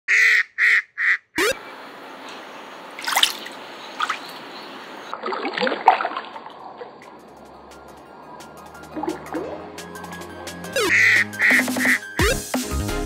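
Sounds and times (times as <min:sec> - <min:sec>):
shallow water trickling: 0:02.8 - 0:10.5
water splashes: 0:02.9 - 0:10.0.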